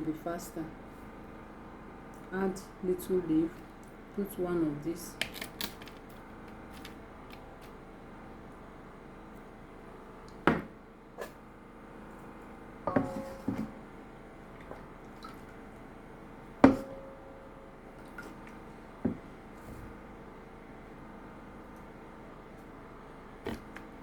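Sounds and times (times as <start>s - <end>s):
plates and lids clinking: 12.9s - 13.7s.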